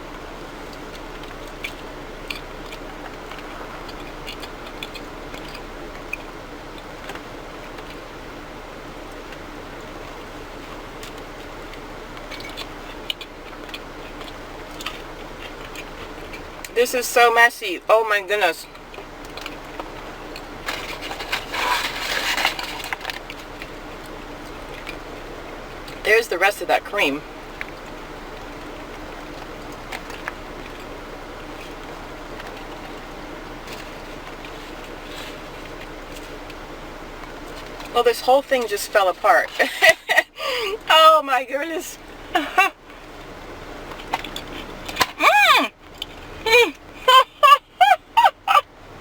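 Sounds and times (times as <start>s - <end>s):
chewing muffin: 0.0s - 16.8s, 18.6s - 26.1s, 27.2s - 38.7s
steady background hum: 0.0s - 49.0s.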